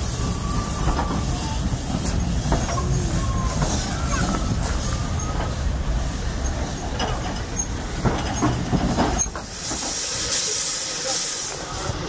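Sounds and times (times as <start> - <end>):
railway carriages rumbling past: 0.0 - 12.0
clanks over rail joints: 6.4 - 10.1
loud hiss: 9.2 - 12.0.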